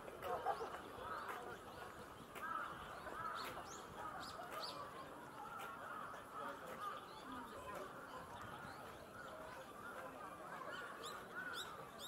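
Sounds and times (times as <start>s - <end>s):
steady background murmur: 0.0s - 12.0s.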